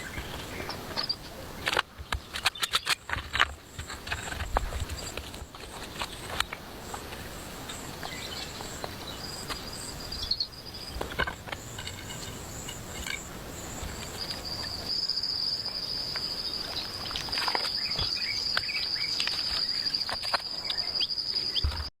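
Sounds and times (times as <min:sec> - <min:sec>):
insects trilling: 0:00.0 - 0:21.9
scattered clicks and knocks: 0:10.9 - 0:14.2.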